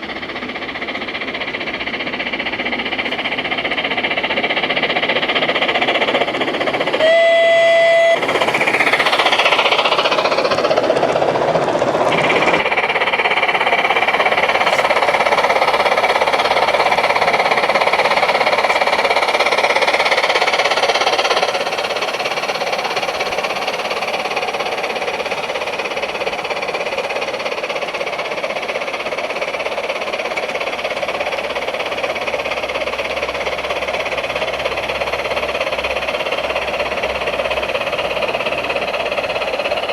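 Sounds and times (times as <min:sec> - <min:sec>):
model locomotive steam running: 0:00.0 - 0:39.9
steam whistle: 0:06.9 - 0:09.3.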